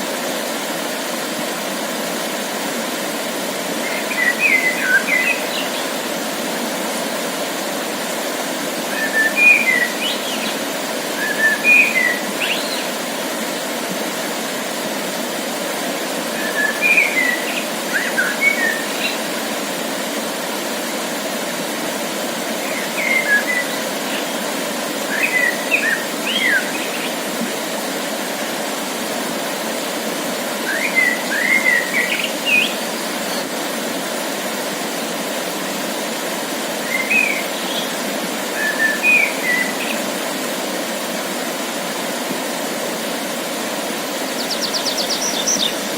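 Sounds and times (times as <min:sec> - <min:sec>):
songbird singing: 0:03.8 - 0:06.0, 0:09.0 - 0:13.0, 0:16.4 - 0:19.3, 0:22.6 - 0:27.3, 0:30.7 - 0:33.5, 0:36.8 - 0:40.1, 0:44.3 - 0:45.9.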